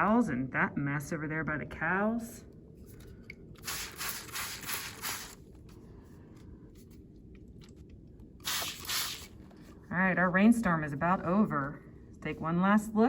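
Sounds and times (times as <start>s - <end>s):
spray bottle squirts: 3.6s - 5.4s, 8.4s - 9.4s.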